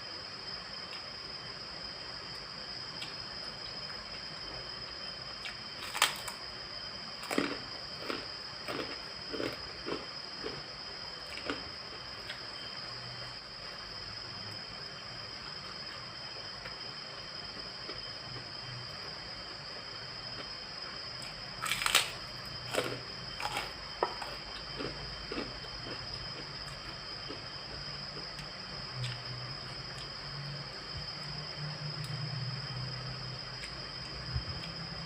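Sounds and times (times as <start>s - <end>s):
moist chewing: 21.6s - 26.0s.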